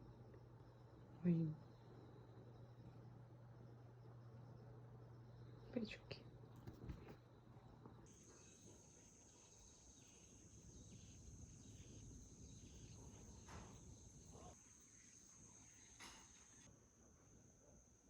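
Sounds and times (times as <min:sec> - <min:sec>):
insects trilling: 0:07.3 - 0:18.0.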